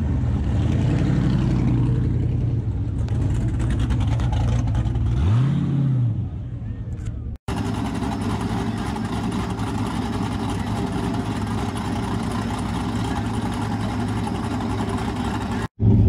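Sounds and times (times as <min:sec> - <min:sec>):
car engine idling: 0:07.5 - 0:16.0.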